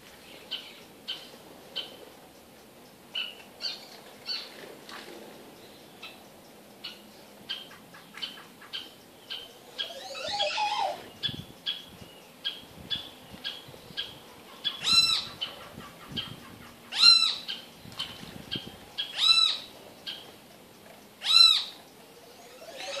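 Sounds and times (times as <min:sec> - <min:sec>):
rising and falling bird call: 0:09.3 - 0:11.4, 0:21.2 - 0:23.0.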